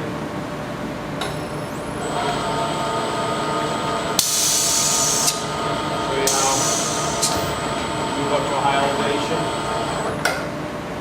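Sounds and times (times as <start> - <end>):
vacuum pump whining: 1.2 - 10.6
hiss of air: 4.2 - 5.4, 6.3 - 7.5.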